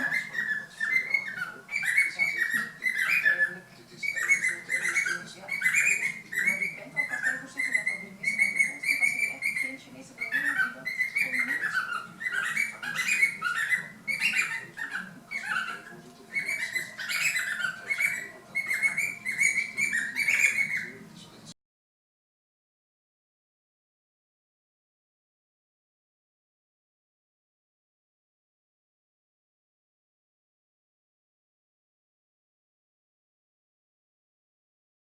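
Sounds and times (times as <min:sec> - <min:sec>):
pet bird warbling song: 0:00.0 - 0:21.5.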